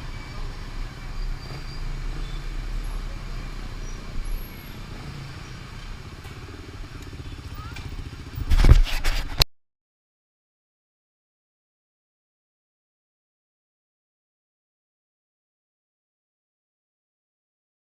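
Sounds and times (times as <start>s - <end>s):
motorbike engine low rumble: 0.0s - 9.4s.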